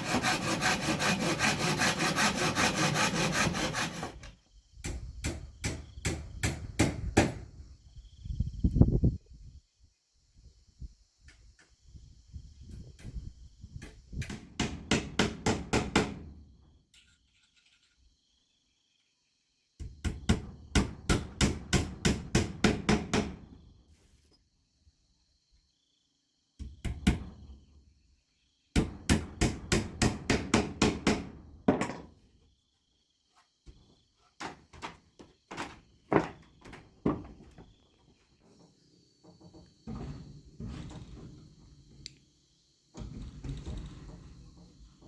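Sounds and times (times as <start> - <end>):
hammering on wood: 4.8 - 7.4, 13.8 - 16.3, 19.8 - 23.4, 28.8 - 32.0.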